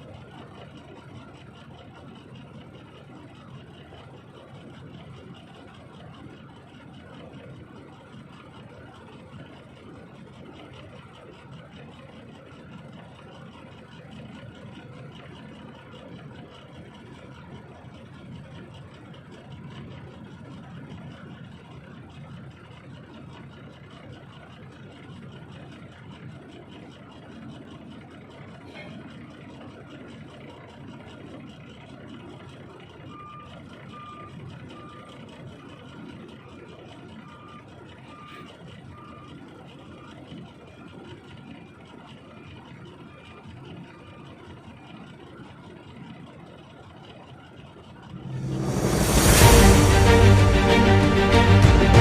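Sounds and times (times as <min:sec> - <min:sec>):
truck engine and road noise: 0:00.0 - 0:52.0
reversing alarm beeps: 0:33.1 - 0:35.2, 0:37.2 - 0:40.1.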